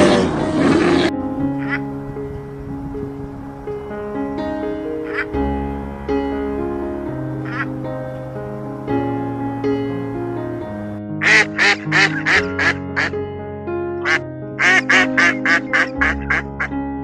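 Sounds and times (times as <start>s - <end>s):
background music with held notes: 0.0s - 17.0s
duck quacking: 5.0s - 5.3s, 7.4s - 7.7s, 11.2s - 13.2s, 14.0s - 16.7s.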